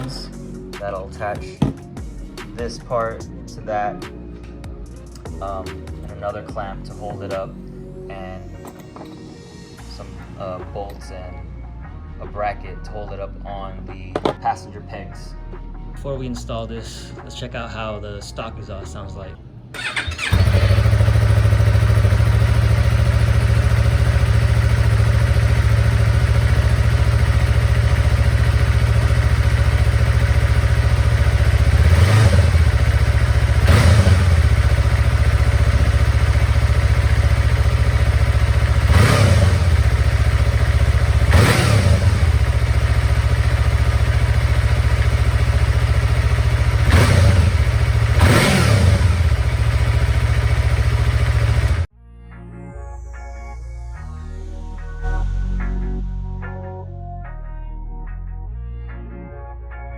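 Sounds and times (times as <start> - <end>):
engine throttle blips: 19.8 - 51.9
motorcycle engine idling: 19.8 - 51.9.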